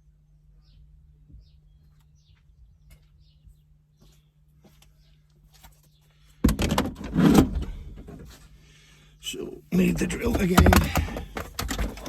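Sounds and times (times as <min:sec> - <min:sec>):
faint bird chirps: 0:00.0 - 0:06.3
low steady hum: 0:00.0 - 0:12.0.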